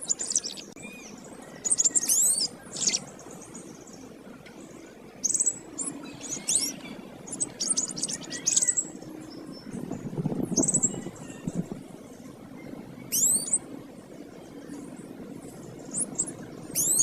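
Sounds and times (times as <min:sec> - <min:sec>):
canary singing chirps and trills: 0:00.0 - 0:04.1, 0:05.1 - 0:11.7, 0:12.5 - 0:13.8, 0:15.5 - 0:17.0.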